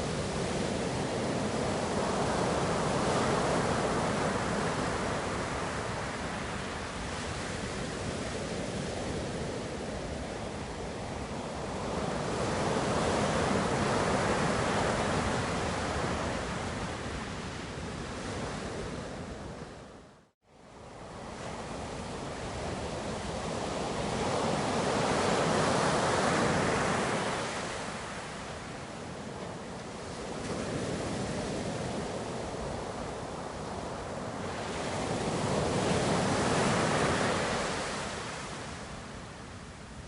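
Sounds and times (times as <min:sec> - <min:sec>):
ocean waves surging: 0:21.3 - 0:39.2.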